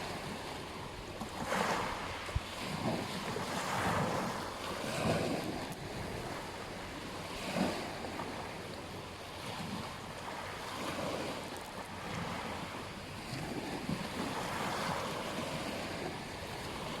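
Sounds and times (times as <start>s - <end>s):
wind on microphone: 0.0s - 8.6s
ocean waves washing onto beach: 0.0s - 17.0s.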